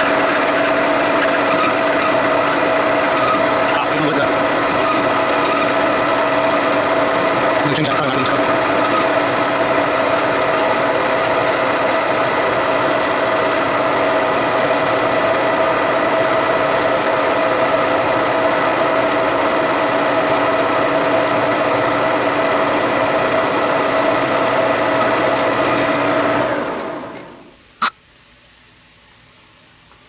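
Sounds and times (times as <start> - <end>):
machine tool cutting steel: 0.0 - 27.4
drive whine: 0.0 - 28.8.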